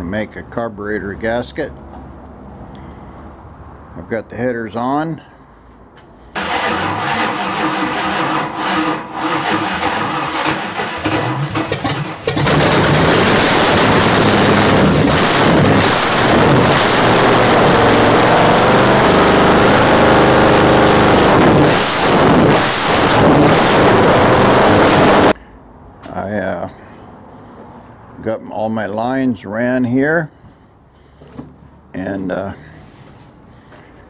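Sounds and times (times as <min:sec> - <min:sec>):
car engine starting and running: 0:06.3 - 0:25.4.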